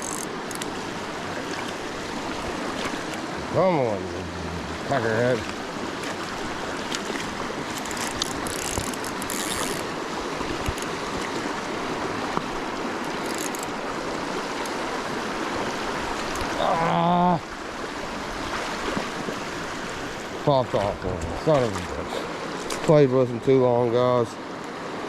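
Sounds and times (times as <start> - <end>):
creek water rushing: 0.0 - 25.0
person exclaiming: 16.6 - 17.4.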